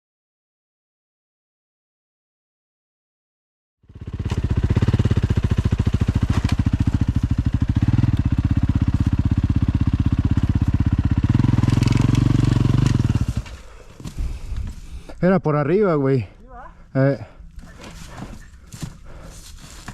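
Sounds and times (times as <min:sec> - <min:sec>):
dirt bike engine running: 0:03.8 - 0:14.9.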